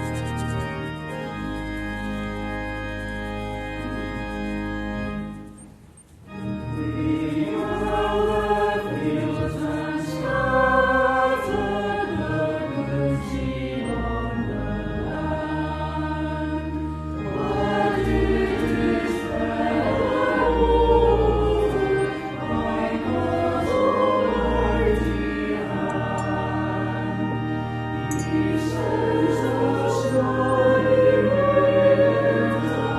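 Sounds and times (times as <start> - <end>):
pipe organ: 0.0 - 32.9
choir singing a hymn: 6.6 - 32.9.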